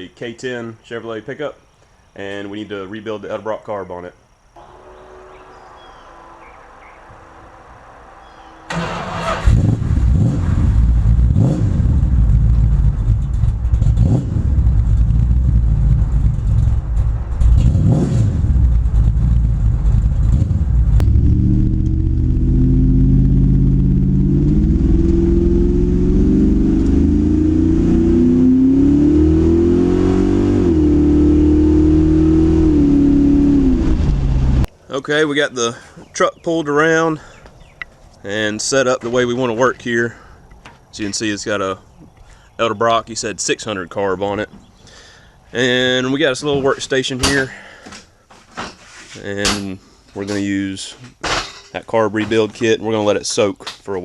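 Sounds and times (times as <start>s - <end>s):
vehicle engine revving: 4.6s - 34.7s.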